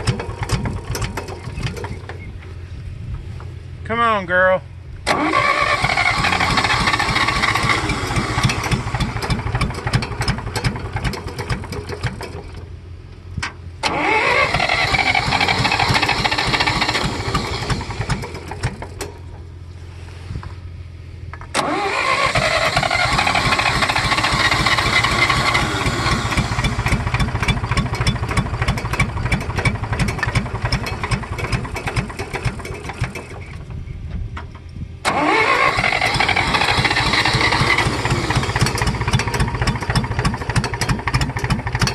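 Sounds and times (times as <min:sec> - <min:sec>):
electric starter cranking engine: 0:05.0 - 0:12.6, 0:13.8 - 0:19.4, 0:21.5 - 0:33.5, 0:35.0 - 0:41.9.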